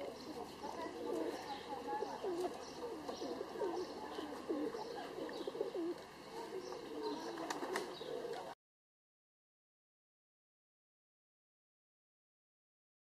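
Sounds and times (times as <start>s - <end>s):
high bird calls: 0.0s - 8.3s
pigeons cooing: 0.0s - 8.6s.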